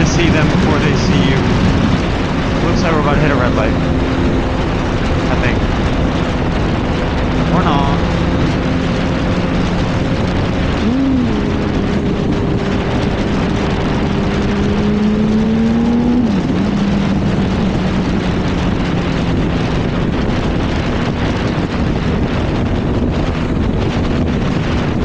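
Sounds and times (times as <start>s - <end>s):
motorcycle engine revving: 0.0s - 25.0s
wind rush on microphone: 0.0s - 25.0s.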